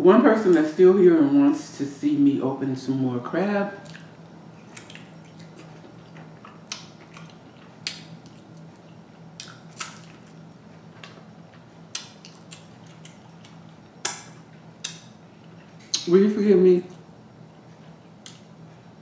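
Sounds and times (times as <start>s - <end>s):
low steady hum: 0.0s - 19.0s
person chewing sausage: 3.8s - 16.1s.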